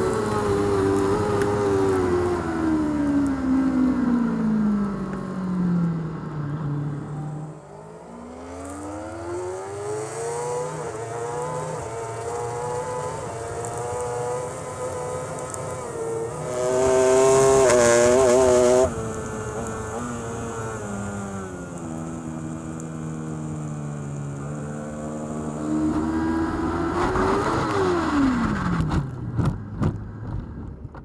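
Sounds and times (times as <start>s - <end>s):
motorcycle engine accelerating: 7.0s - 30.7s.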